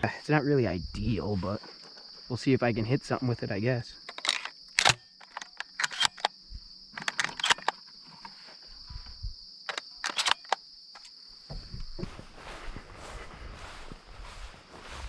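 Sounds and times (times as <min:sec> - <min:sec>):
crickets chirping: 0:00.0 - 0:15.0
handling noise clicks and knocks: 0:04.1 - 0:08.4, 0:09.6 - 0:11.9.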